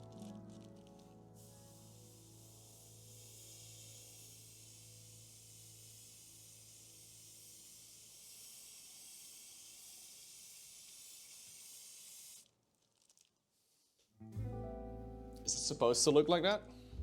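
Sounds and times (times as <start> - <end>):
airbrush spraying hiss: 0.0 - 12.5.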